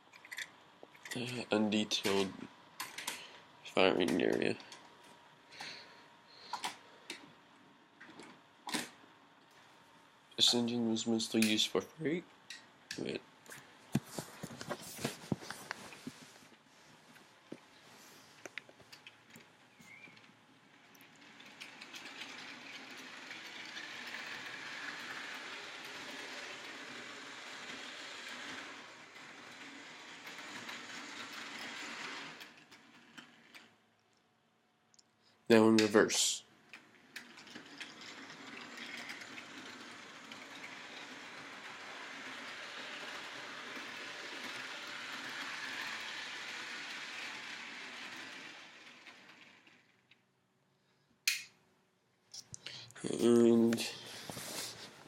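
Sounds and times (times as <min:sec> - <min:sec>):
model train rattling on rails: 0:20.8 - 0:33.7, 0:36.7 - 0:50.1.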